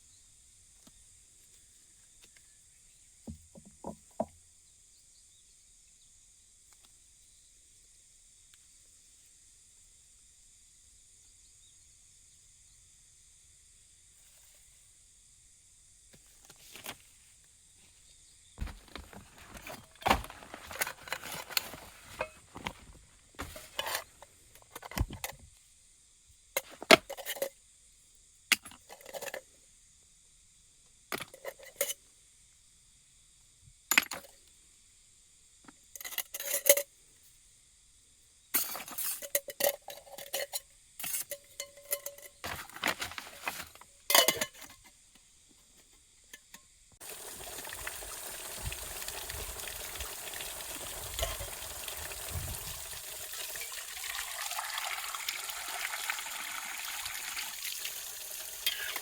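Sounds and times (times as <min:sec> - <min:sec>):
metal and glass cookware clinking: 0:18.6 - 0:24.1, 0:38.6 - 0:44.8, 0:51.1 - 0:51.6, 0:53.4 - 0:54.3, 0:58.6 - 0:59.0.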